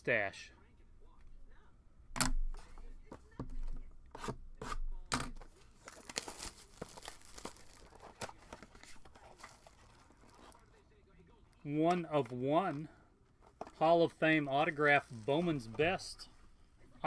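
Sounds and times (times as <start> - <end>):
paper and plastic tearing: 4.1 - 10.6.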